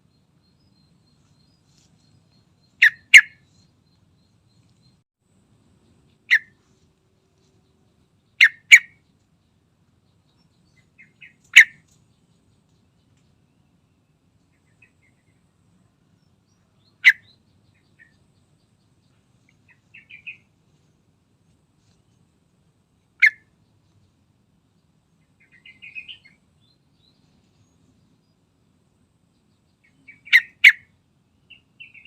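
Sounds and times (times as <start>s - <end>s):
bird chattering: 2.6s - 3.6s, 6.2s - 6.6s, 8.3s - 9.0s, 10.8s - 11.9s, 16.8s - 18.2s, 19.6s - 20.4s, 23.2s - 23.5s, 25.4s - 26.4s, 29.8s - 30.9s
bird sharp call notes: 2.8s - 3.4s, 8.4s - 9.0s.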